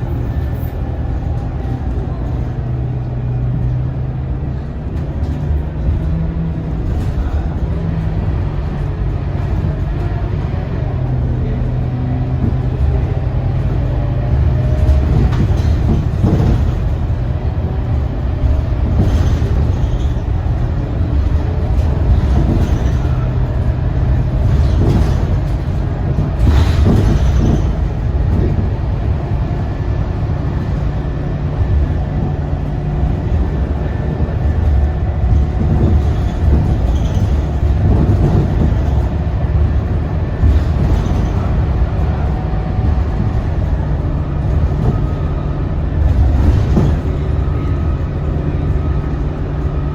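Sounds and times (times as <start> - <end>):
bus diesel engine drone: 0.0 - 49.9
road rumble: 0.0 - 49.9
body knocks and rattles: 12.2 - 49.3.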